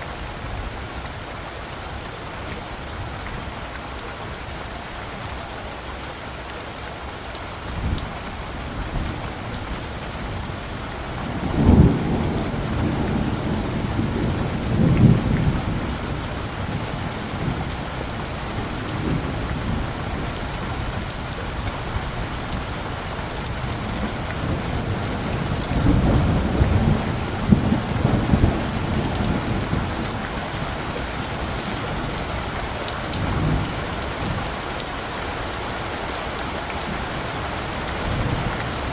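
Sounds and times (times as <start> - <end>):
heavy rain hissing: 0.0 - 38.9
distant thunder rolling: 7.8 - 34.9.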